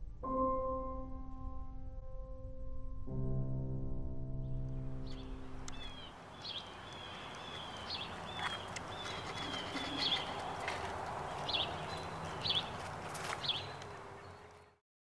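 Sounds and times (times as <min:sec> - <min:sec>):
outdoor background noise: 0:00.0 - 0:14.8
small birds chirping: 0:04.4 - 0:14.8
thin whistled bird notes: 0:05.0 - 0:14.8.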